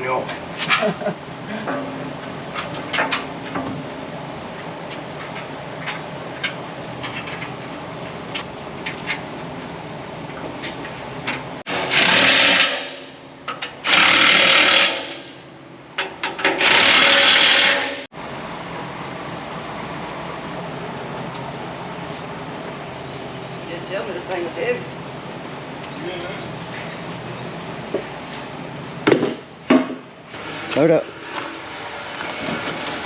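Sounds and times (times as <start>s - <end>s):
impact wrench bursts: 11.7s - 15.5s, 16.3s - 18.1s.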